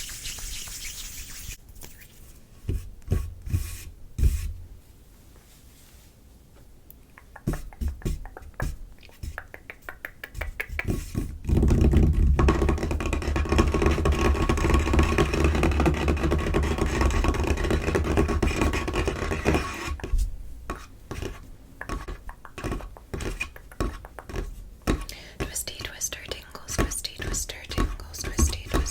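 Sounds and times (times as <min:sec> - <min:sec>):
fingers scratching on table top: 0:00.0 - 0:01.6, 0:12.7 - 0:20.1.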